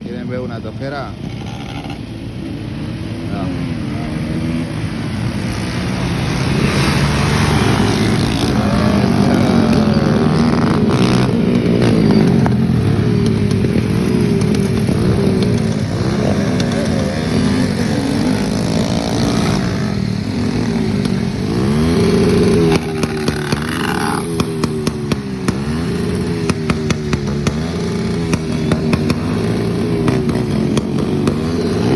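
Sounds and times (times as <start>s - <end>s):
dirt bike engine revving: 0.0s - 31.9s.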